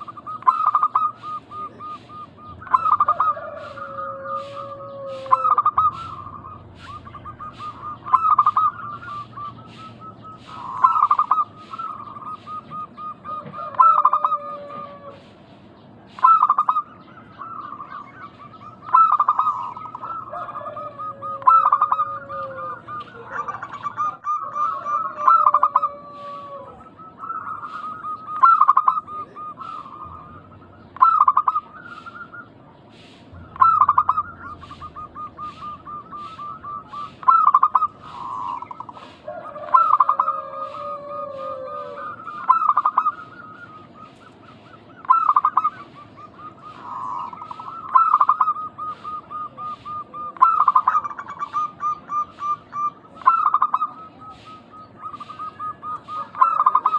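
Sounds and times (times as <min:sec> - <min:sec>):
doves cooing: 0:00.0 - 0:56.9.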